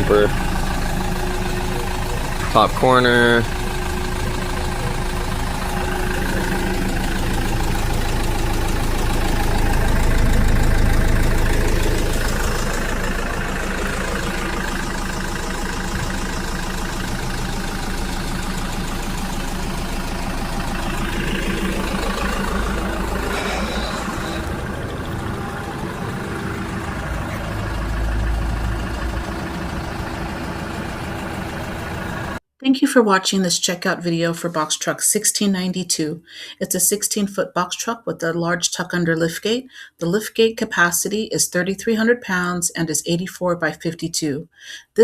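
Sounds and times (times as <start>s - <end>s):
diesel truck engine idling: 0.0s - 32.4s.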